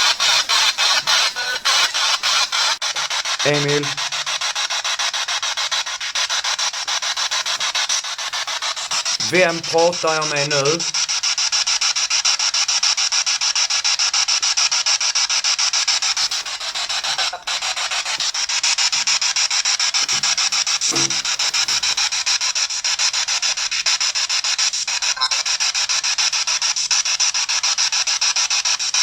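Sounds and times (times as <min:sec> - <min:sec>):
chopped radio static: 0:00.0 - 0:11.2, 0:16.0 - 0:19.3, 0:20.0 - 0:22.2, 0:25.0 - 0:25.7
voice-like sound: 0:03.5 - 0:04.0, 0:09.2 - 0:10.9.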